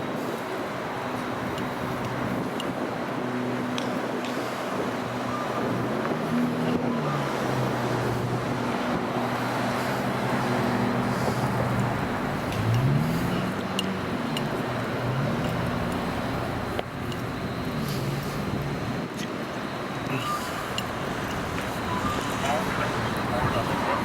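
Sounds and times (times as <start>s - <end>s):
train mechanical drone: 0.0s - 24.0s.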